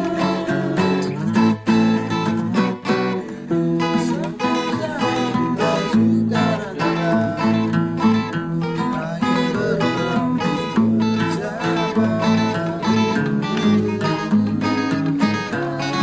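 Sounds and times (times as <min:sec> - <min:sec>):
steady beat: 0:00.0 - 0:07.0
strummed acoustic guitar music: 0:00.0 - 0:16.0.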